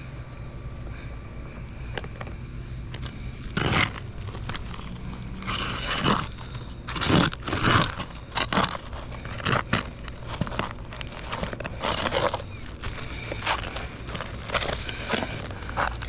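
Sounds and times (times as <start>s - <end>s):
roof shingles scraping and crunching: 3.0s - 16.0s.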